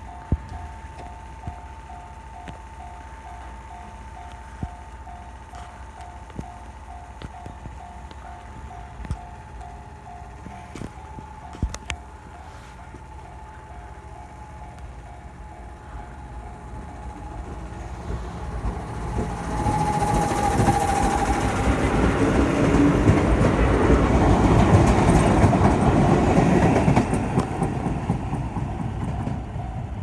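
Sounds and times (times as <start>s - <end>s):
level crossing warning bell: 0.0s - 30.0s
train wheels clattering over rails: 0.0s - 30.0s.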